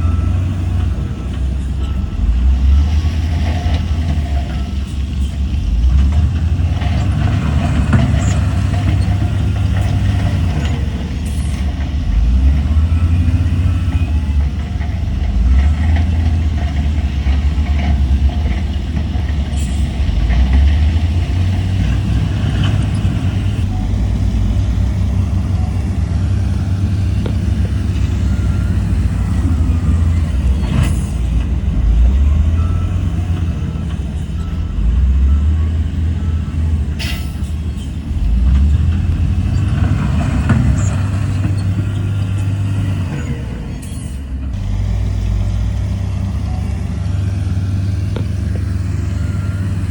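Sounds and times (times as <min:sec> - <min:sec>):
heavy diesel machinery rumbling: 0:00.0 - 0:49.9.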